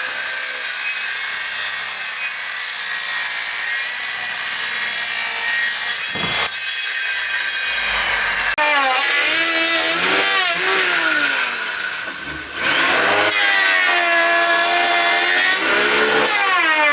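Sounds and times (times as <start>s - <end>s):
steady sawing: 0.0s - 16.9s
small engine revving: 8.0s - 16.9s.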